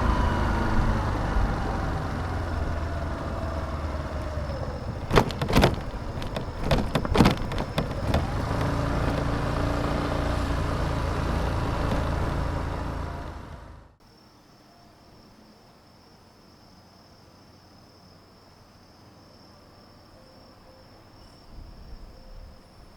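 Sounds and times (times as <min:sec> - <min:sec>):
motor vehicle engine running: 0:00.0 - 0:14.0
sharp clicks or knocks: 0:05.0 - 0:09.4.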